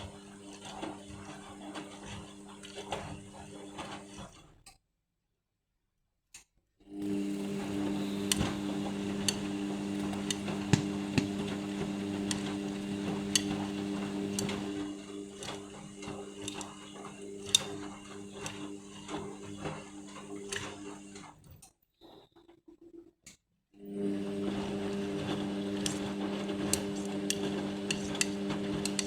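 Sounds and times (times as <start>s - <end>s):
washing machine motor hum: 0.0s - 4.3s, 6.9s - 21.4s, 23.8s - 29.0s
drum clicks and knocks: 10.0s - 13.6s.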